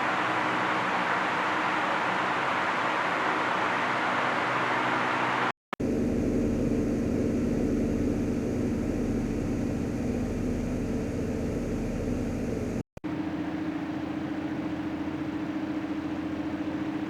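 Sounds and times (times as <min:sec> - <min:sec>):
mechanical whir with low hum: 0:00.0 - 0:17.0
pulsing single-pitched hum: 0:05.8 - 0:12.8.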